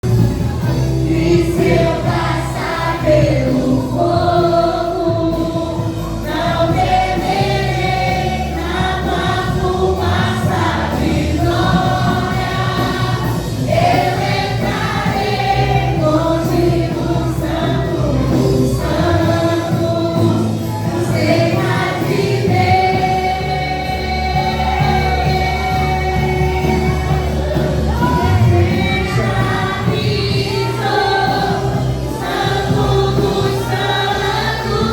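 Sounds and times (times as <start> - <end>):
choir singing gospel song: 0.0 - 34.9.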